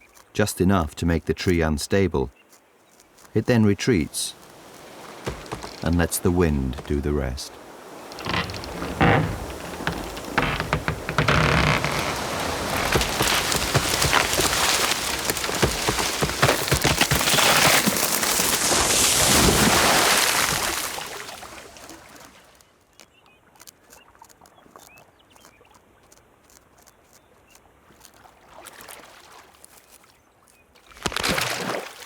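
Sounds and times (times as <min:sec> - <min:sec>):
tree falling with branches crashing: 0:04.2 - 0:21.8, 0:30.9 - 0:31.8.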